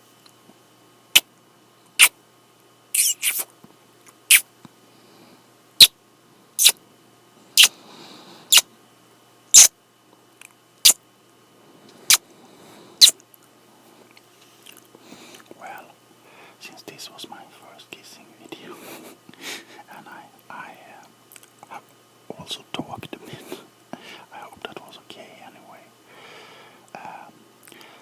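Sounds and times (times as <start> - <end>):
lip smacking kisses: 3.0 - 3.5, 4.1 - 4.4, 6.6 - 6.8, 13.0 - 13.3.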